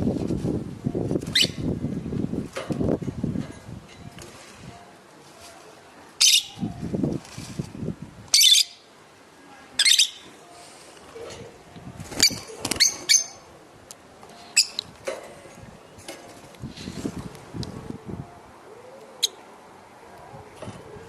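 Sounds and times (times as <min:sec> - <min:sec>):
lovebirds chirping and squawking: 0:01.2 - 0:01.6, 0:06.2 - 0:06.8, 0:08.3 - 0:08.8, 0:09.8 - 0:10.8, 0:12.1 - 0:13.5, 0:14.4 - 0:15.0, 0:19.1 - 0:19.4.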